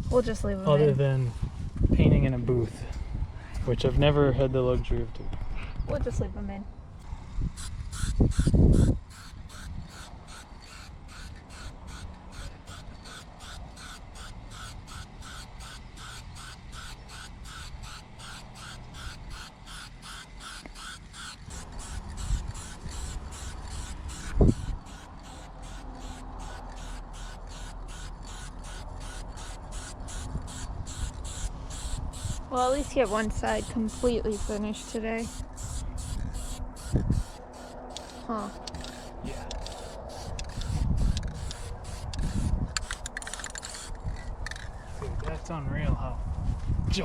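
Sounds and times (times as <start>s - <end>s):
rhythmic chirping: 7.8s - 44.6s.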